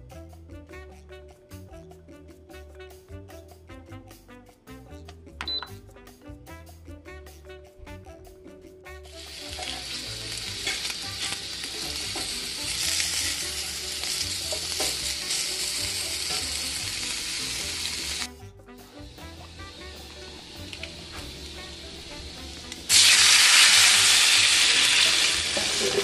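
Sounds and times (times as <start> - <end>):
food sizzling in a pot: 9.0 - 26.0.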